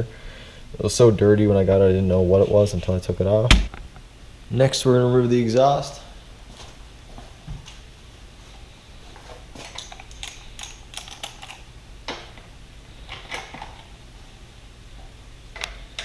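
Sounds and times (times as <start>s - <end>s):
steady low hum: 0.0s - 16.0s
hand tools clicking and tapping: 9.6s - 12.3s.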